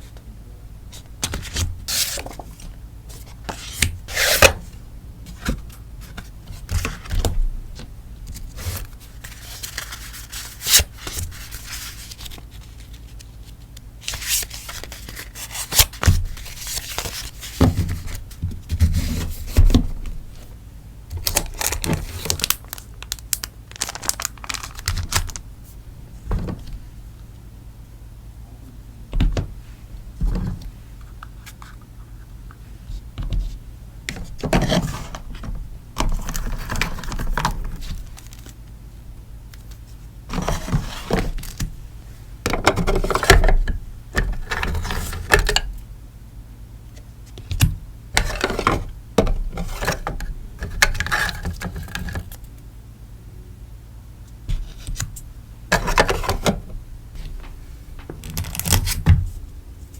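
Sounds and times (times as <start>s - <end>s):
packaging rustling and crinkling: 8.4s - 18.2s, 21.2s - 25.5s, 36.1s - 38.6s.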